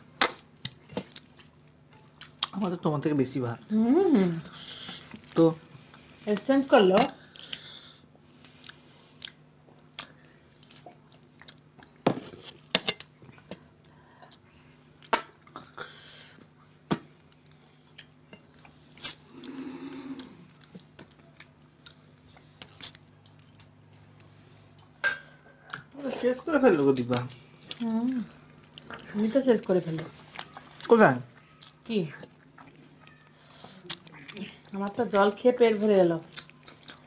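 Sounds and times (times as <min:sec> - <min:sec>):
chewing and mouth noises: 0:00.2 - 0:02.6, 0:08.4 - 0:25.0, 0:27.0 - 0:35.4, 0:36.1 - 0:37.0.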